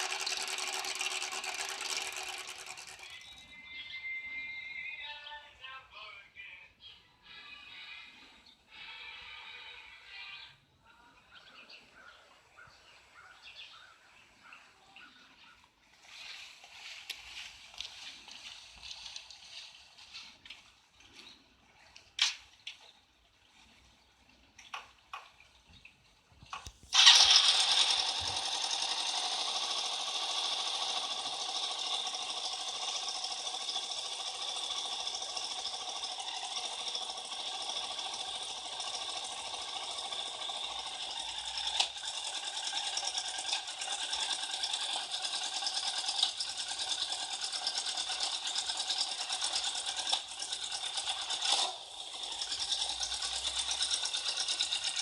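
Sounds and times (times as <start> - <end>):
small motor and gears whirring: 0.0 - 4.5, 15.6 - 55.0.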